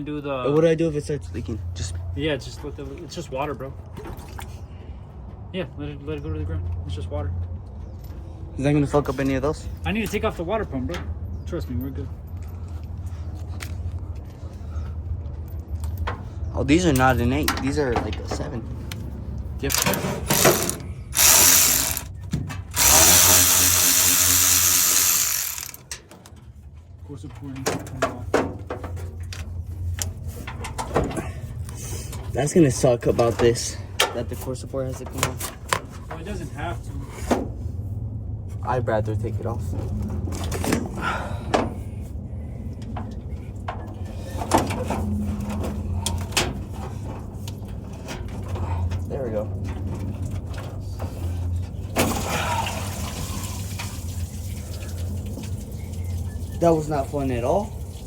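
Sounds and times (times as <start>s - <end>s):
cordless ratchet spinning: 19.7s - 22.1s, 22.8s - 25.9s.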